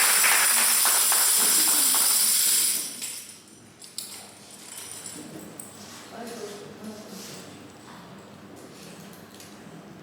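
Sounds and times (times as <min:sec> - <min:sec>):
congregation clapping: 0:00.0 - 0:02.4
tambourine jingling: 0:00.0 - 0:03.4.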